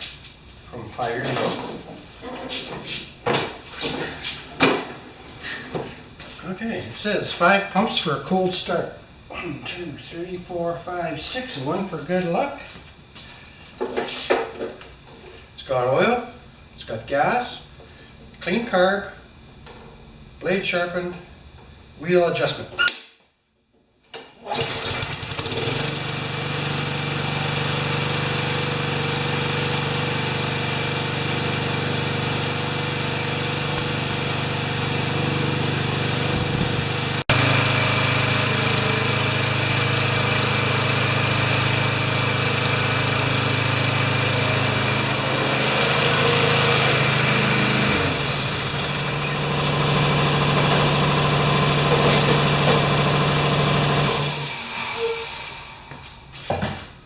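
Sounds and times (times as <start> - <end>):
lawn mower engine starting and running: 24.2 - 55.9.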